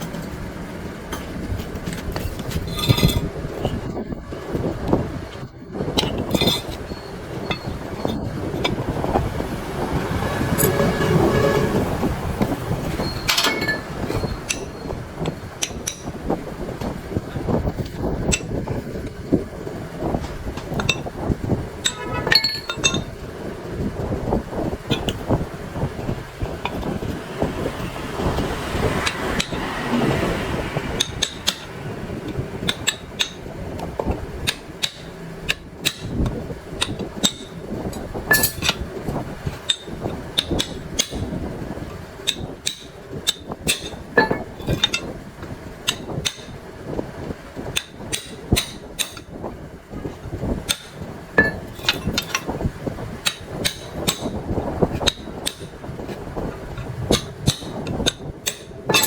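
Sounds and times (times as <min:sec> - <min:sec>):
scraping noise: 0:10.0 - 0:13.2
metallic taps and clinks: 0:21.8 - 0:23.1, 0:38.3 - 0:38.8, 0:42.3 - 0:45.1, 0:50.7 - 0:52.5, 0:56.8 - 0:59.0.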